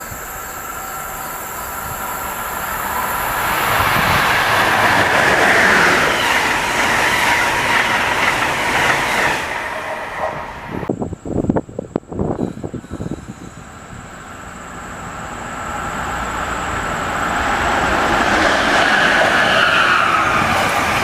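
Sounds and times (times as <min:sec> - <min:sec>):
passenger train passing: 0:00.0 - 0:21.0.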